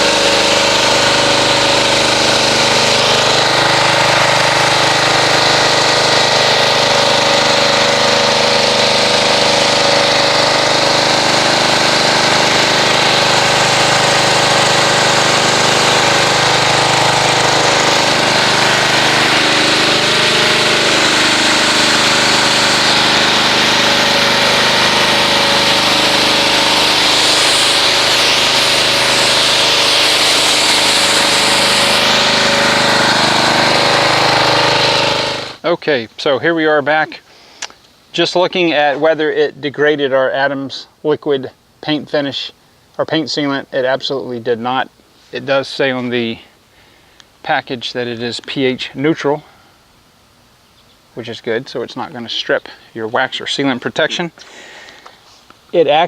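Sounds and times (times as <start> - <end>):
pressure washer motor drone: 0.0 - 35.6
high-pressure water spray hiss: 20.4 - 35.4.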